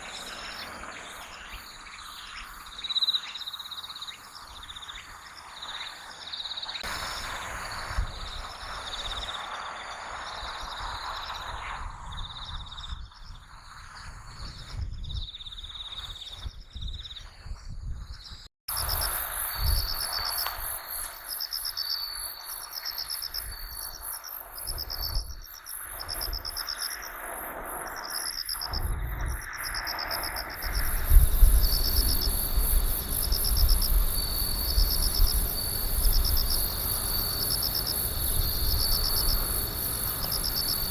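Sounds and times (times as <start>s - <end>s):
crickets chirping: 0.0s - 14.3s, 18.7s - 40.9s
wind rumbling on microphone: 6.8s - 21.4s, 23.3s - 40.9s.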